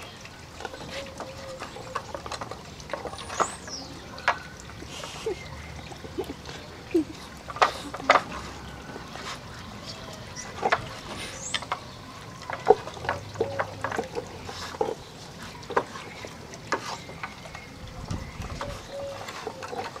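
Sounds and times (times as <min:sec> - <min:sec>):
plastic toy clicking and knocking: 0:10.2 - 0:15.0.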